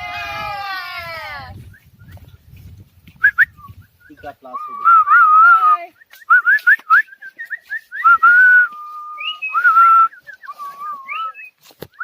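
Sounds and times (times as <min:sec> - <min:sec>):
person whistling a tune: 0:03.2 - 0:12.0.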